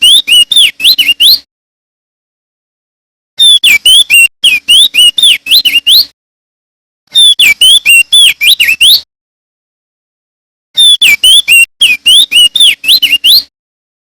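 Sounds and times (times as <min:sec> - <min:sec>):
bird singing whistled notes: 0:00.0 - 0:01.5, 0:03.4 - 0:06.1, 0:07.1 - 0:09.1, 0:10.8 - 0:13.5.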